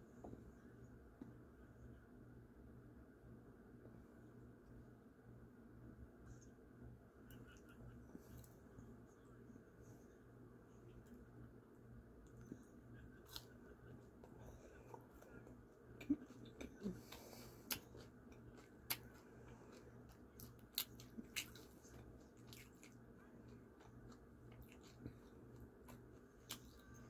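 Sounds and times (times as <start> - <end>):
faint close-up chewing: 7.2 - 27.0.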